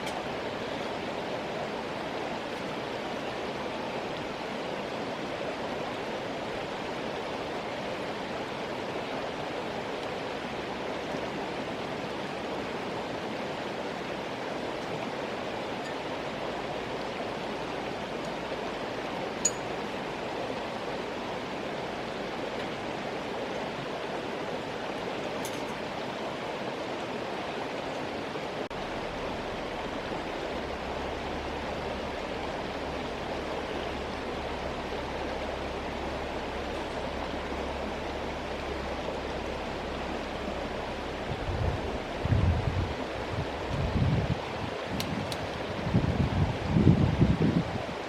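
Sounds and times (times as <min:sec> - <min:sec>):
river rushing: 0:00.0 - 0:48.0
wind buffeting microphone: 0:37.2 - 0:48.0.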